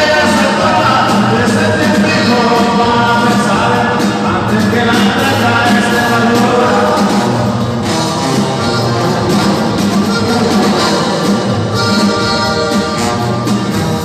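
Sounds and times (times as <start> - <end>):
person singing: 0.0 - 7.7
live band playing: 0.0 - 14.0.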